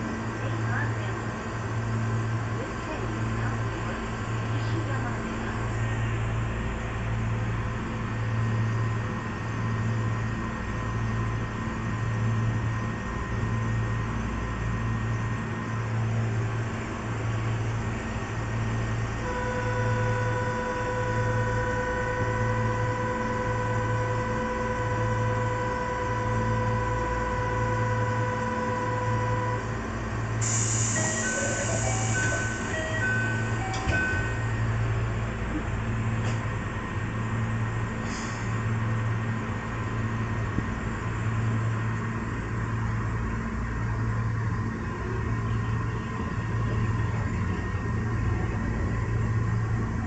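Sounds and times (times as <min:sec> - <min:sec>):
pulsing low train equipment hum: 0:00.0 - 0:50.0
hiss of train doors closing: 0:30.3 - 0:34.7, 0:35.4 - 0:36.6, 0:37.9 - 0:38.7.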